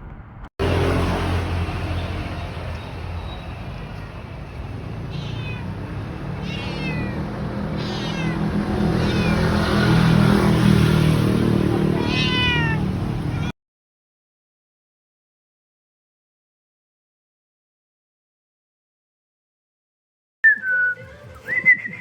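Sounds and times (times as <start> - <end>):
cat meowing: 4.9 - 9.6, 11.8 - 13.5.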